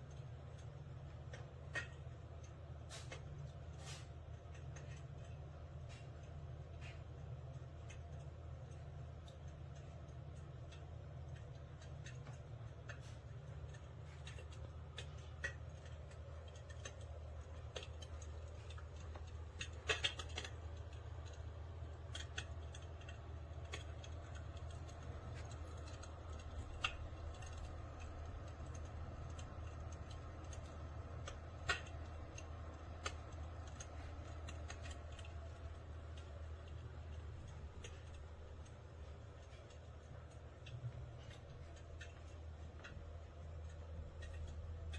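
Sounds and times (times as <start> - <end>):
electric fireplace crackling: 0.0 - 44.9
low steady hum: 0.0 - 44.9.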